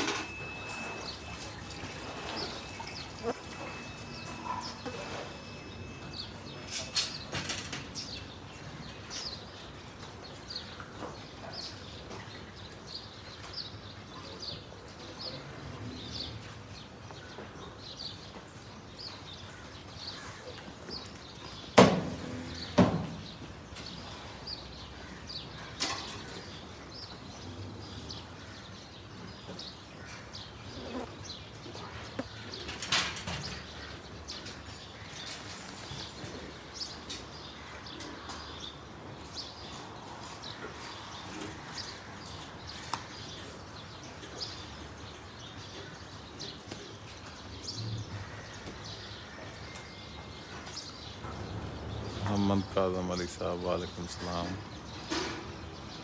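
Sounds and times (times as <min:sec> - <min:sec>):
small birds chirping: 0:16.1 - 0:56.0.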